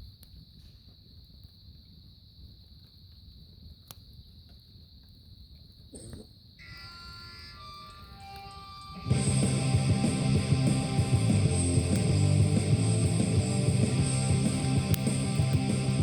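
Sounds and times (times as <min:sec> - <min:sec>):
crickets trilling: 0:00.0 - 0:11.6
music: 0:06.6 - 0:16.0.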